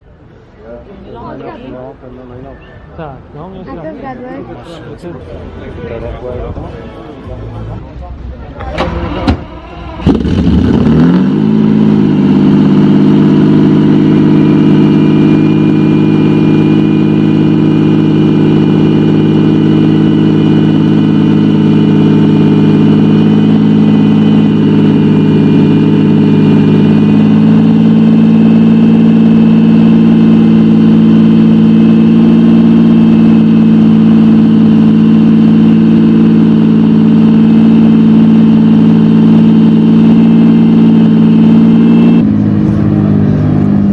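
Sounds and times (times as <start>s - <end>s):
car engine idling: 6.8s - 43.9s.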